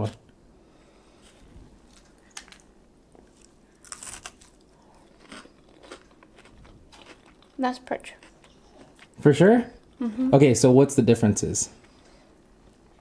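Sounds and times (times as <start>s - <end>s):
person chewing fish: 3.3s - 7.6s.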